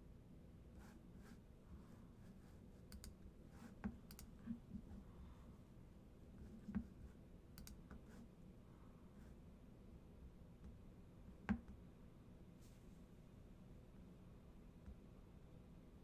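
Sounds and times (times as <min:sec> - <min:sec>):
low room hum: 0:00.0 - 0:16.0
faint sharp clicks: 0:07.6 - 0:07.8.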